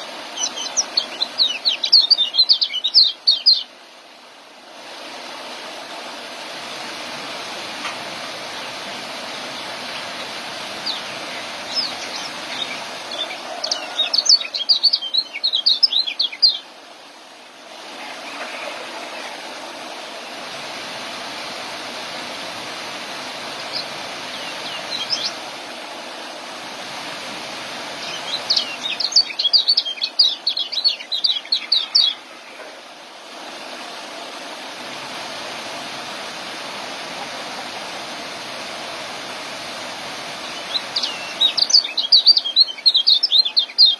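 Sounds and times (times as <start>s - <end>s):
songbird chirping: 0.0s - 3.7s, 9.6s - 16.7s, 23.6s - 25.4s, 28.0s - 32.7s, 40.4s - 43.9s
steady rushing noise: 0.0s - 42.0s.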